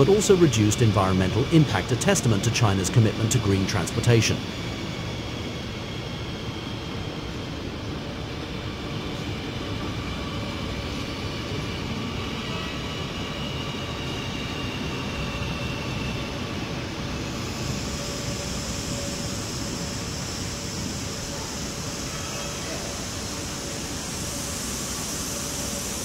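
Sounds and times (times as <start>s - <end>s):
thin high whine: 0.0s - 26.0s
hiss: 17.3s - 26.0s.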